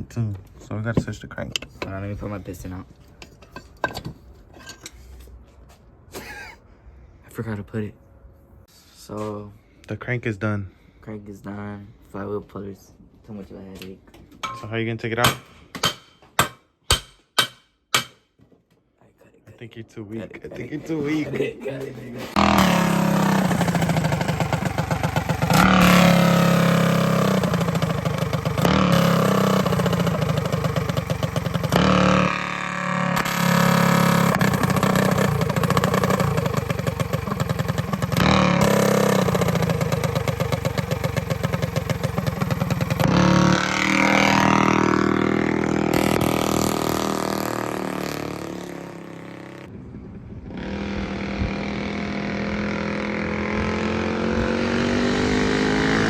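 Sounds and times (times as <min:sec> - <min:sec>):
small engine revving: 0:22.3 - 0:49.7, 0:50.5 - 0:56.0.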